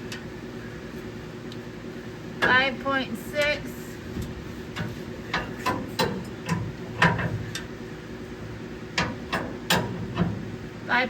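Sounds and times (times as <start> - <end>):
hand tools clicking and knocking: 4.8 - 7.7.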